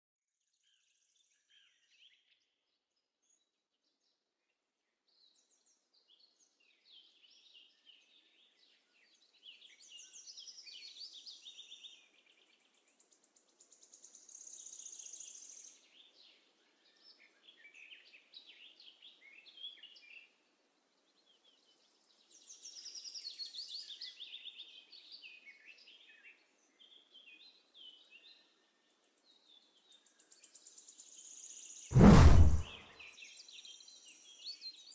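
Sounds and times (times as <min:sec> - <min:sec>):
faint birdsong: 0:00.5 - 0:31.8.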